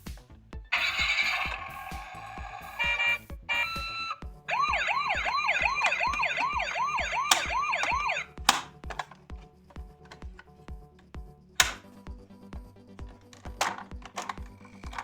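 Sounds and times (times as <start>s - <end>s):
background music with beat: 0.0s - 15.0s
toy siren wailing: 0.7s - 8.4s
short beeps: 2.8s - 4.2s
click: 5.8s - 9.2s, 11.6s - 11.8s.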